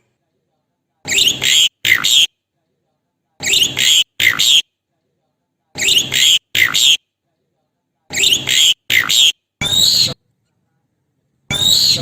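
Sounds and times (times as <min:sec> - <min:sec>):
starling harsh calls: 0:01.1 - 0:02.3, 0:03.4 - 0:04.6, 0:05.8 - 0:07.0, 0:08.1 - 0:10.2, 0:11.5 - 0:12.0.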